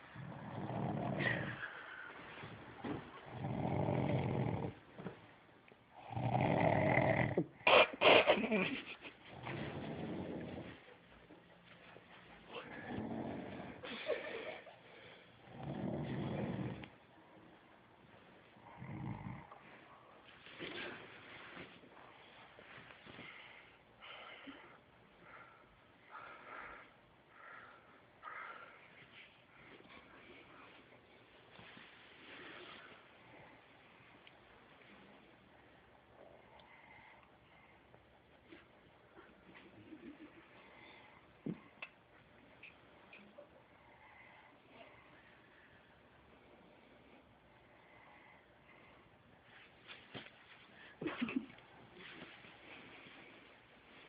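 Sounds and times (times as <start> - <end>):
dog snoring: 0.2 - 1.6, 3.2 - 4.8, 6.0 - 7.5, 9.3 - 10.8, 12.7 - 13.8, 15.4 - 16.9, 18.6 - 19.6.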